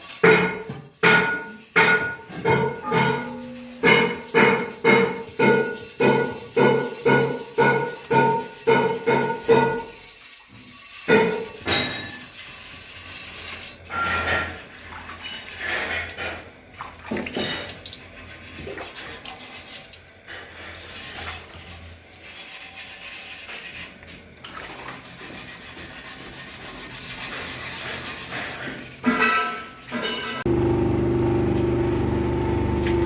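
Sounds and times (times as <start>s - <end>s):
rubbing and scraping by hand: 0.0s - 16.4s, 17.4s - 30.4s.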